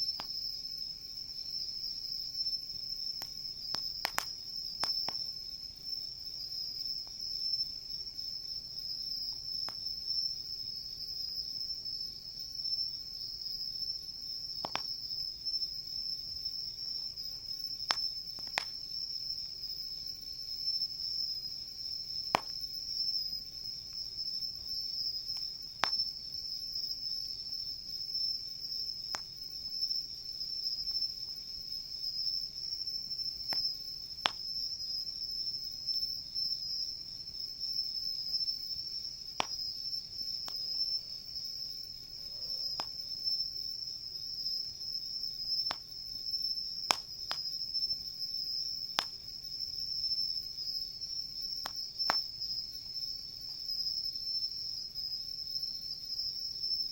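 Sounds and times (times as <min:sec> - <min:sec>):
insects trilling: 0:00.0 - 0:56.9
campfire crackling: 0:02.9 - 0:05.4, 0:14.4 - 0:15.1, 0:16.4 - 0:19.6, 0:20.4 - 0:26.7, 0:39.1 - 0:41.0, 0:45.5 - 0:48.0, 0:51.1 - 0:52.3
campfire popping: 0:03.1 - 0:05.3, 0:14.5 - 0:15.0, 0:16.8 - 0:19.2, 0:22.2 - 0:23.1, 0:23.9 - 0:26.5, 0:33.4 - 0:34.6, 0:39.4 - 0:40.9, 0:46.8 - 0:47.5, 0:49.0 - 0:49.2, 0:51.6 - 0:52.3.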